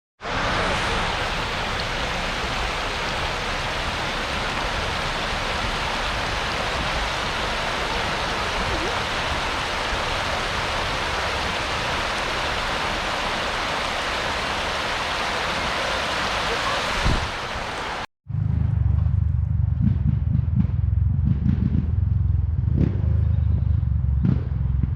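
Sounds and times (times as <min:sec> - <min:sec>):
floodwater rushing: 0:00.2 - 0:18.1.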